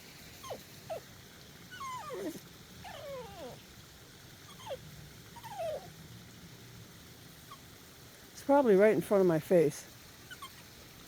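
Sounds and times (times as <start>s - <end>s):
dog whining: 0.4s - 1.1s, 1.7s - 3.6s, 4.5s - 4.8s, 5.4s - 5.9s, 10.3s - 10.7s.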